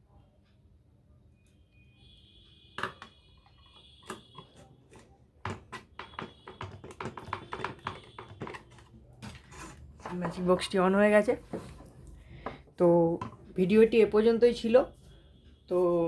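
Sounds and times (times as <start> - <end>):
clicks and knocks from handling box: 4.0 - 10.5.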